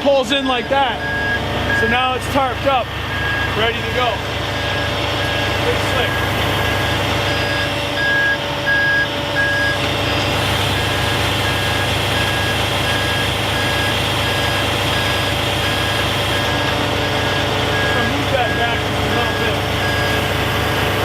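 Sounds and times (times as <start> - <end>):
diesel engine running: 0.0 - 21.0
truck backup alarm beeping: 0.0 - 21.0.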